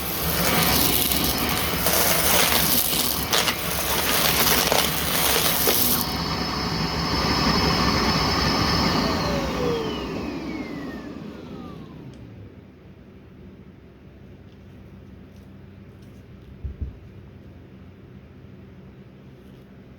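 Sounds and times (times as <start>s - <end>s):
debris rattling in vacuum: 0.0s - 8.4s
vacuum cleaner running: 0.0s - 12.5s.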